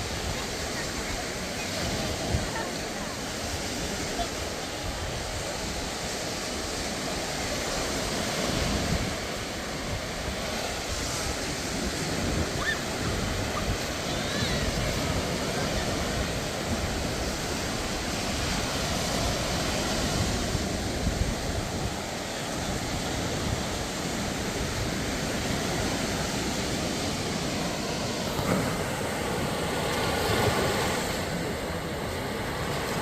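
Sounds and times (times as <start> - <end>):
surf breaking on beach: 0.0 - 33.0.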